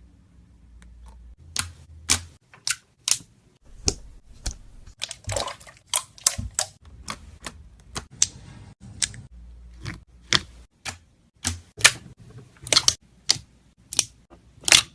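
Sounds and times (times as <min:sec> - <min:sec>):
slime squishing: 0:00.9 - 0:12.0.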